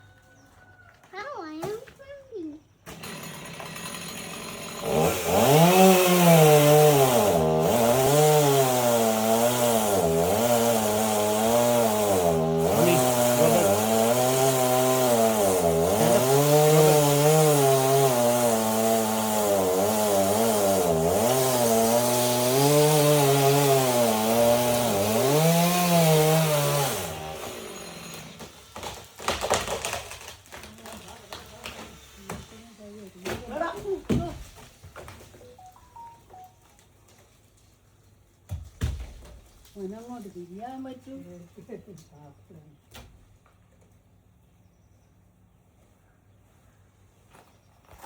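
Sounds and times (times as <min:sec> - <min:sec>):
chainsaw cutting wood: 0:02.8 - 0:35.4.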